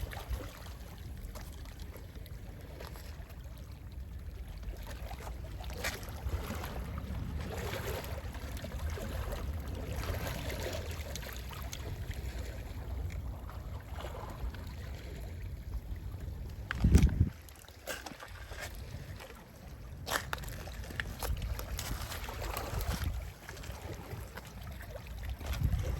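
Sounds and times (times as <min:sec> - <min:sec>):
sea waves lapping: 0:00.0 - 0:25.9
wind rumble: 0:15.6 - 0:17.5, 0:25.4 - 0:25.9.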